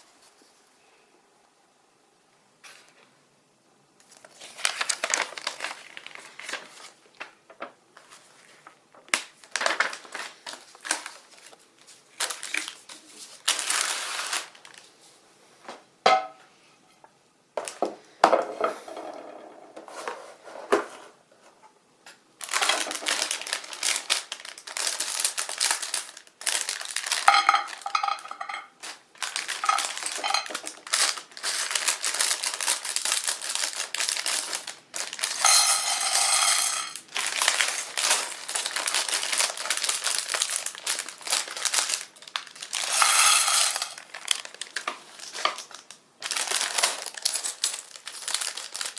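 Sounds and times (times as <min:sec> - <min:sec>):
plastic crinkling: 0:04.0 - 0:15.1, 0:22.4 - 0:48.9
plastic bricks clattering: 0:22.5 - 0:48.9.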